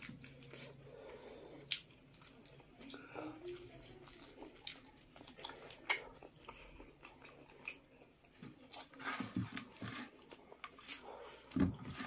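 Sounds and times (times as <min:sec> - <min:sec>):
person chewing fried chicken: 0:00.0 - 0:09.0.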